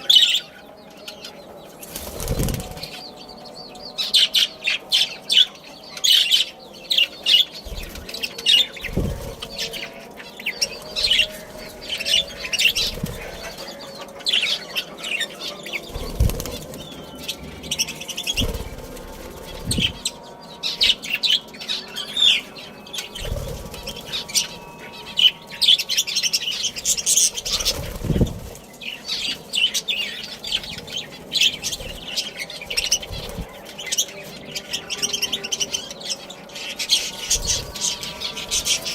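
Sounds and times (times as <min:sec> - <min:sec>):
budgerigars chirping and chattering: 0:00.0 - 0:38.9
wings flapping: 0:01.8 - 0:03.1, 0:07.6 - 0:14.4, 0:15.5 - 0:20.3, 0:22.9 - 0:24.6, 0:26.2 - 0:34.1, 0:37.1 - 0:38.9.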